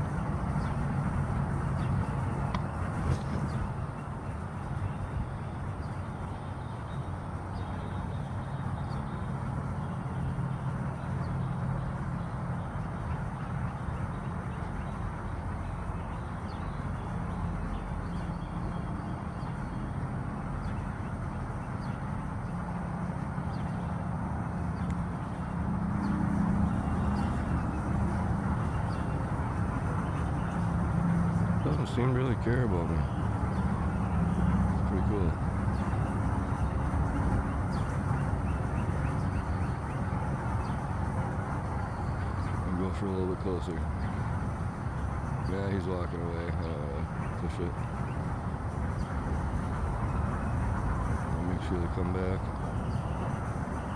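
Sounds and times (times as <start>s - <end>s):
outdoor background rumble: 0.0s - 53.9s.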